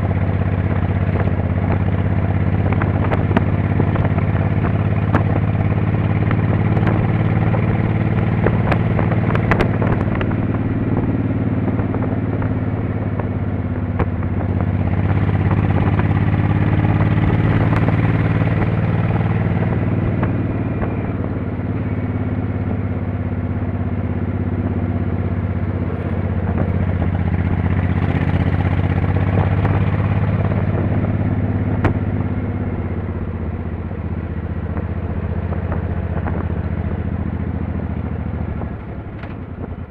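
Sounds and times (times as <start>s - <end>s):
motorcycle engine revving: 0.0s - 39.9s
sharp clicks and rattles: 38.6s - 39.8s.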